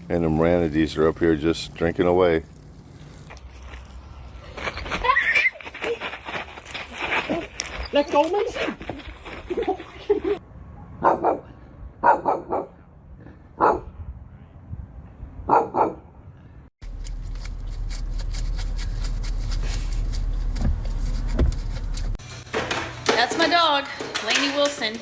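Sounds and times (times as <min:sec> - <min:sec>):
low hum with fine crackling: 0:00.0 - 0:04.0
dog barking: 0:10.8 - 0:12.8, 0:13.6 - 0:14.0, 0:15.5 - 0:16.1.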